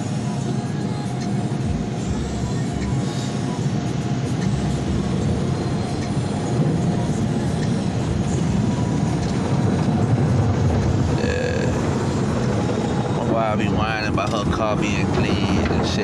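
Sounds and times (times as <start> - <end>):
car wash machinery rumbling: 0.0 - 16.0.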